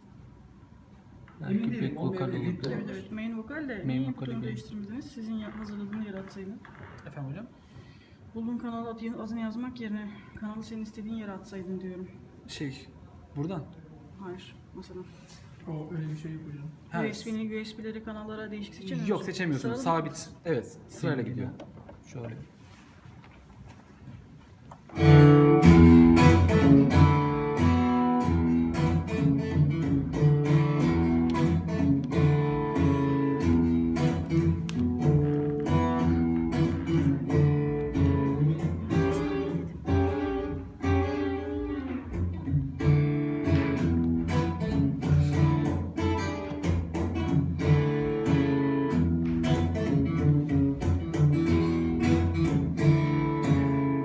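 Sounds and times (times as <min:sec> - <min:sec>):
band music with plucked strings: 0:24.9 - 0:54.0.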